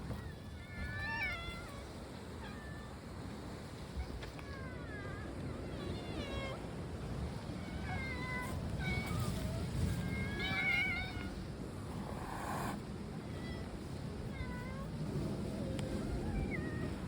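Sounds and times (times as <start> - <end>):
cats meowing: 7.6 - 11.4.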